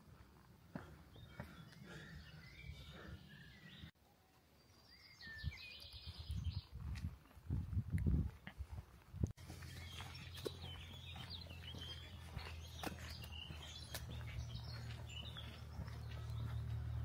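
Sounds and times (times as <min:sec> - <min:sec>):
small birds chirping: 0:00.7 - 0:07.1, 0:09.4 - 0:17.0.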